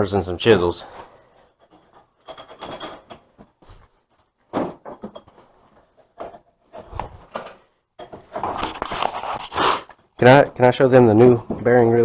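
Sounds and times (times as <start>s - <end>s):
tools knocking and clunking: 1.6s - 3.6s, 4.5s - 8.7s.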